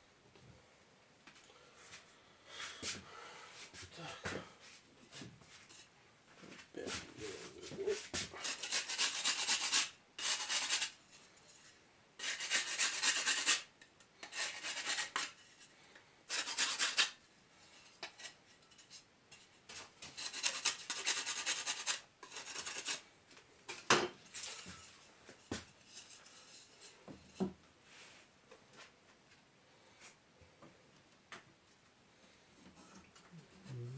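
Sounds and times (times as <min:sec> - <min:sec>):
scraping strokes on tile: 0:06.9 - 0:15.7, 0:16.3 - 0:23.1, 0:23.7 - 0:28.3.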